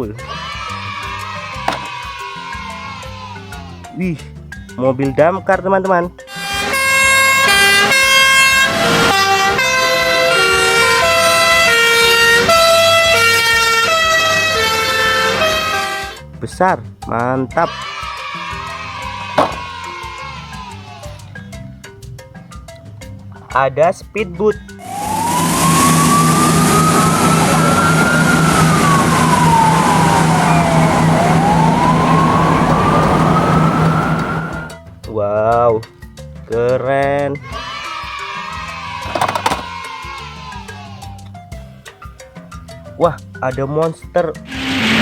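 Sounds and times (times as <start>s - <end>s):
toy electronic siren: 6.4s - 16.1s, 24.8s - 34.8s, 39.0s - 39.8s, 44.5s - 45.0s.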